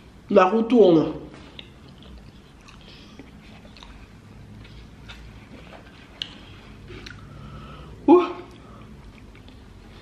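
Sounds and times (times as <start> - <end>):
chewing food: 1.4 - 7.4, 8.5 - 10.0.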